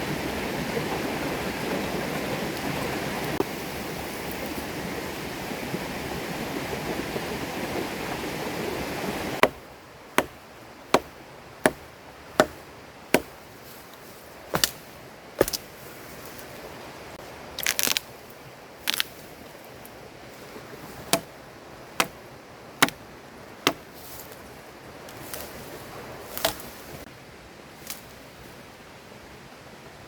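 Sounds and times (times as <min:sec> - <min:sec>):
double knocks: 0:09.4 - 0:09.6, 0:12.4 - 0:12.6
firewood chopping: 0:09.4 - 0:13.4, 0:14.5 - 0:14.8, 0:15.4 - 0:15.6, 0:17.6 - 0:18.0, 0:18.9 - 0:19.1, 0:21.0 - 0:21.4, 0:22.0 - 0:22.2, 0:22.8 - 0:23.0, 0:23.7 - 0:23.9, 0:26.4 - 0:26.7.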